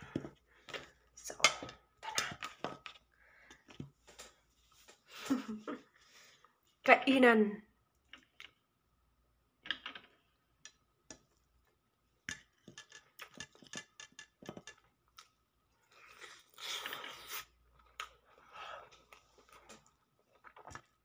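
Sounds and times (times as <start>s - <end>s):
person chewing food: 15.1s - 21.0s.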